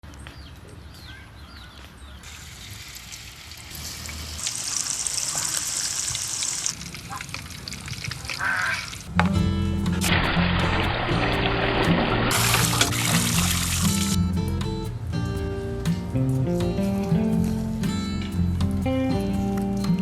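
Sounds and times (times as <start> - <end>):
hot oil sizzling: 2.2 - 9.1, 9.9 - 14.2.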